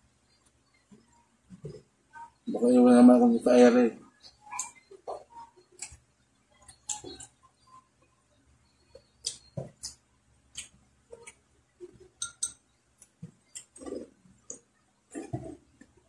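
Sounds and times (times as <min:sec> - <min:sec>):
mouth clicks and lip smacks: 0:04.5 - 0:07.4, 0:09.0 - 0:12.0
chewing: 0:13.0 - 0:16.0.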